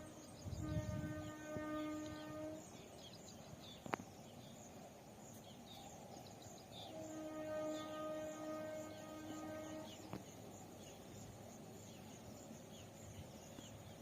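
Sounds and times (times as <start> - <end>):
train horn: 0.0 - 2.8, 6.8 - 10.2
birds chirping: 0.0 - 14.0.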